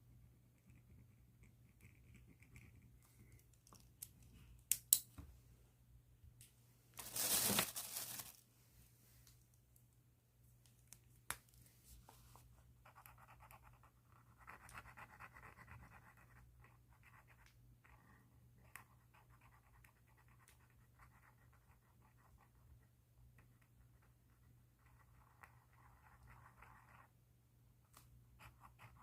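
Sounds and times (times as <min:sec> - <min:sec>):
pen scratching on paper: 0:12.8 - 0:22.6, 0:24.8 - 0:27.1.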